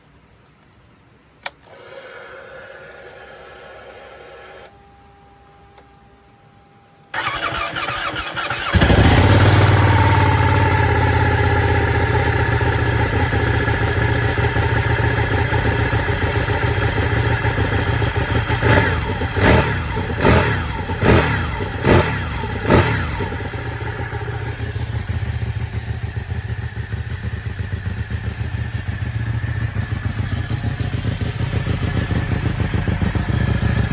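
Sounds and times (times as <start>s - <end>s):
faint steady hum: 0.0s - 7.2s
starter motor cranking: 1.6s - 4.7s, 7.2s - 9.5s
motorcycle engine idling and blipped: 7.1s - 33.9s.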